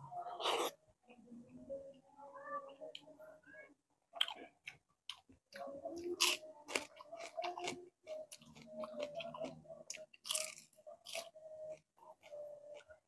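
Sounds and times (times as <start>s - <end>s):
biting and chewing crispy fish: 4.2s - 13.0s.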